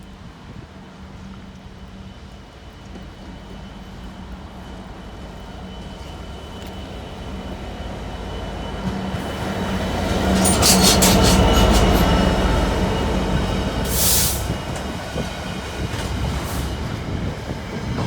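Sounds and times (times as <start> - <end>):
diesel locomotive engine drone: 0.0 - 18.0
train wheels clacking over rail joints: 10.2 - 18.0.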